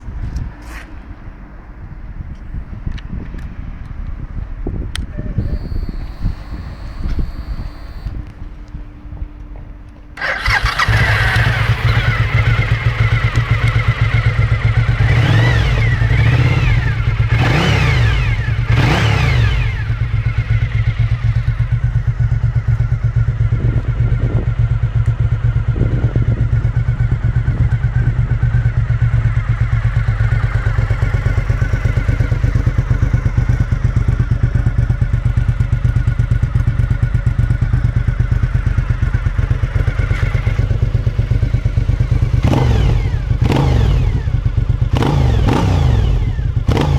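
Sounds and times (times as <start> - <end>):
motorcycle engine revving and idling: 4.1 - 46.9.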